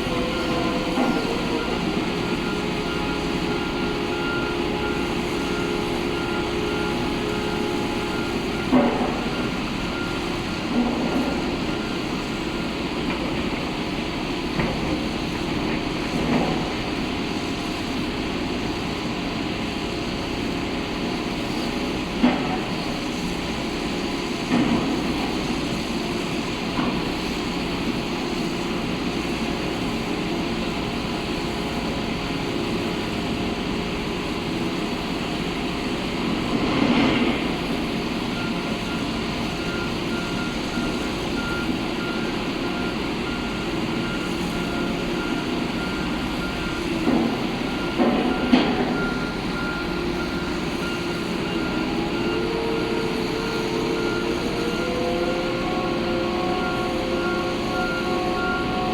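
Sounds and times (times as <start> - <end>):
backup alarm beeping: 0.0 - 12.7, 38.3 - 58.9
heavy machinery running: 0.0 - 58.9.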